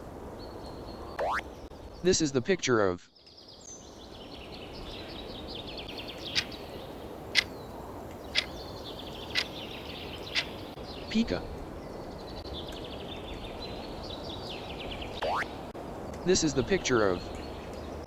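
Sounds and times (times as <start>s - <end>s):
rapid chirping trills: 5.8s - 7.6s, 8.3s - 11.2s.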